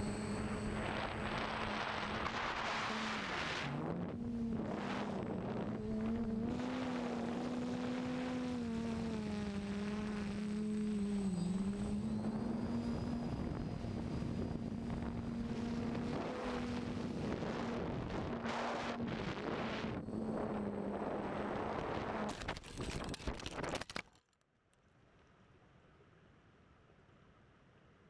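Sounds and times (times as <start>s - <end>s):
drone motors humming: 0.0s - 22.4s
wind noise on microphone: 0.2s - 8.2s, 12.2s - 22.3s.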